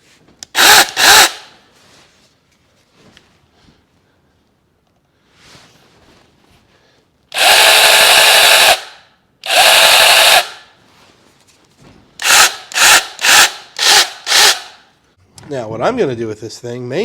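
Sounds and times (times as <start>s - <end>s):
cordless chainsaw running: 0.6s - 1.4s, 7.4s - 10.6s, 12.2s - 14.7s.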